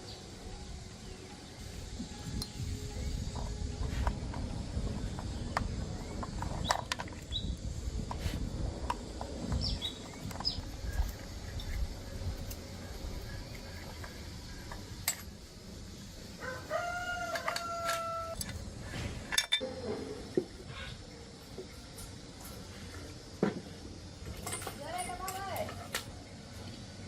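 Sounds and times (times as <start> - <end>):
rooster crowing: 16.4 - 18.4.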